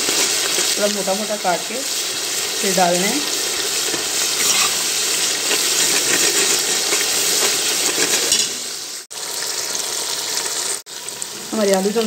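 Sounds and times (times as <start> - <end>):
masala sizzling in oil: 0.0 - 12.0
spatula stirring in a pot: 3.2 - 8.5.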